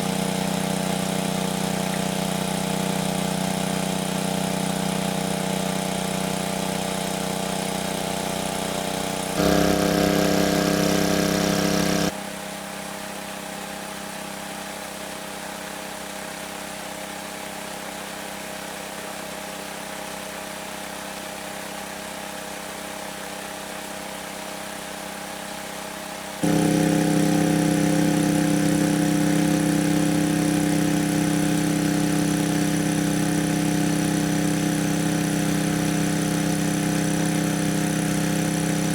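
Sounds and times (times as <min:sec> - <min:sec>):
small engine running: 0:00.0 - 0:12.1, 0:26.4 - 0:38.9.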